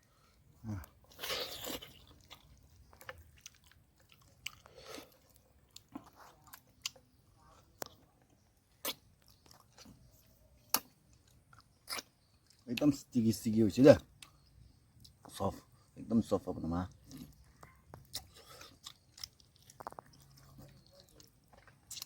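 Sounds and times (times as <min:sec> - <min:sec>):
person chewing food: 0:00.1 - 0:12.8, 0:16.9 - 0:22.0
crunchy bite: 0:00.7 - 0:07.0, 0:08.7 - 0:09.9, 0:10.7 - 0:12.6, 0:17.0 - 0:22.0.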